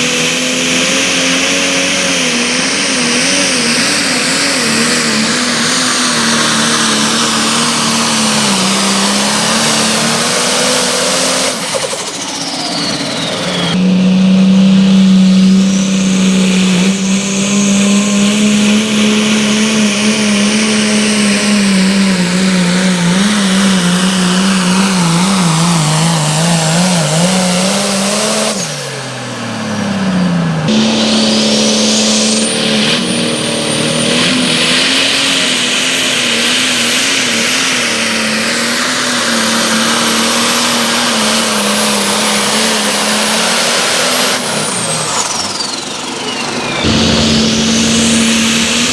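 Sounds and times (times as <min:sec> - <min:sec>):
vehicle engine running at high revs: 0:00.0 - 0:48.9.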